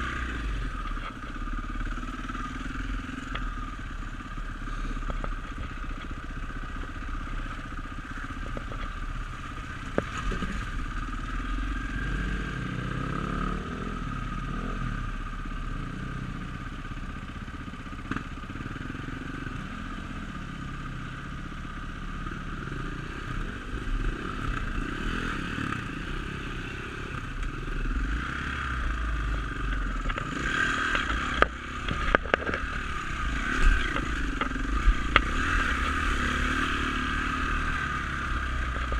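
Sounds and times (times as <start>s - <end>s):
dirt bike engine revving: 22.8s - 38.9s
sharp knocks and rattles: 29.3s - 36.3s.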